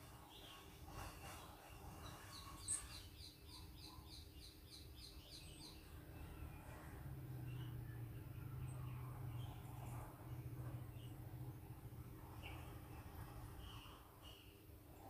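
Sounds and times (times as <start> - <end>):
faint bird chirping: 0.0 - 15.0
low steady hum: 5.2 - 15.0.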